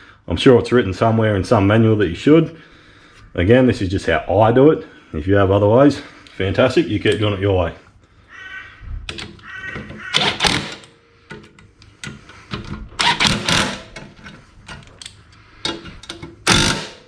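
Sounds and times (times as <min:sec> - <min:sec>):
impact wrench hammering: 0:09.9 - 0:14.0, 0:15.7 - 0:17.0.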